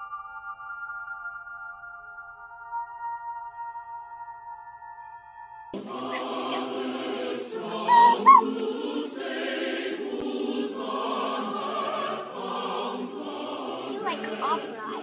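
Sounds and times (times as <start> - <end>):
opera-style choral singing: 5.8 - 15.0
short high yelps: 7.8 - 8.6.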